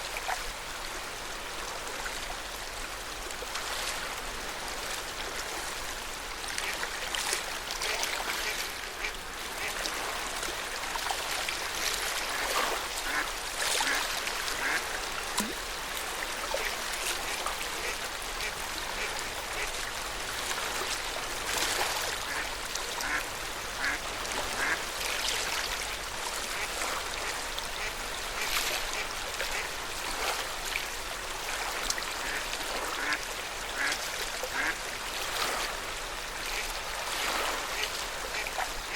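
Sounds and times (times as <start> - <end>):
water lapping at shore: 0.0 - 38.9
short sharp splashes or calls: 12.3 - 15.6, 23.8 - 24.8.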